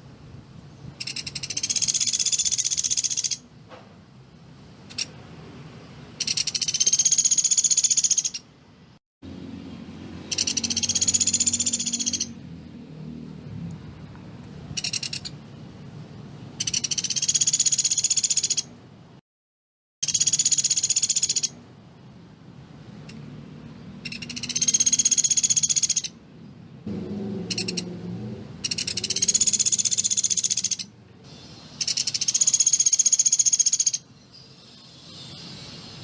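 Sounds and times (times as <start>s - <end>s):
woodpecker rattling call: 1.0s - 3.5s, 4.9s - 5.2s, 6.2s - 8.5s, 10.2s - 12.4s, 14.7s - 15.4s, 16.6s - 18.7s, 20.0s - 21.6s, 24.0s - 26.2s, 27.4s - 27.9s, 28.6s - 35.5s.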